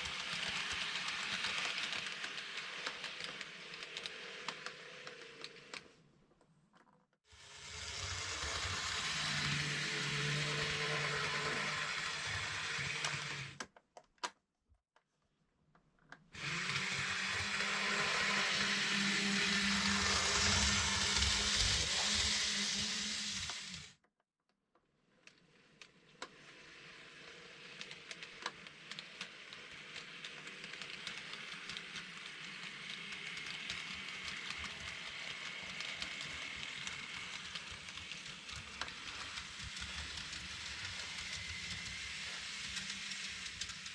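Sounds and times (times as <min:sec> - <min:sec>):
model train motor whirring: 0:00.0 - 0:05.8, 0:07.3 - 0:13.6, 0:16.4 - 0:24.0, 0:25.3 - 0:43.9
wheels clicking on track: 0:00.0 - 0:05.8, 0:07.6 - 0:13.6, 0:16.4 - 0:23.9, 0:27.0 - 0:43.9.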